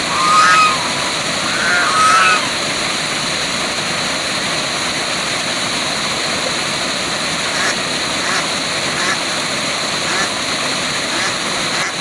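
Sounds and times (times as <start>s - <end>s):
short pitched animal call: 0.0s - 2.6s
waterfall rushing: 0.0s - 12.0s.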